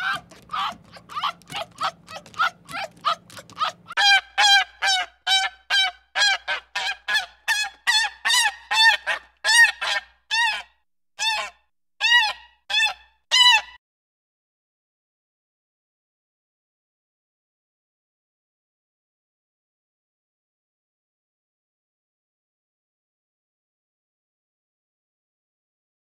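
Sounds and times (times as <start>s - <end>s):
short animal calls: 0.0s - 5.6s
waterfowl honking: 0.0s - 7.3s.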